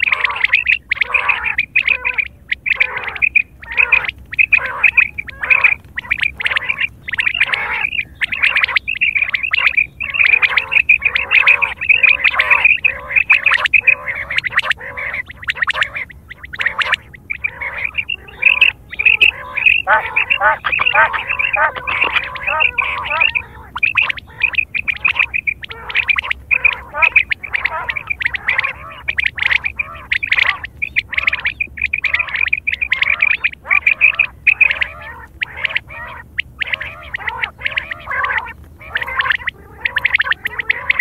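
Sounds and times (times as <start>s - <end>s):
quail calling: 0.0s - 41.0s.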